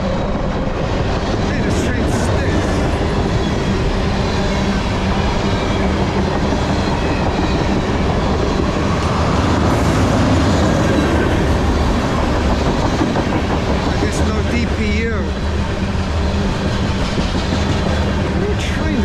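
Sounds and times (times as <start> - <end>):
steel wheels running on rails: 0.0 - 19.0.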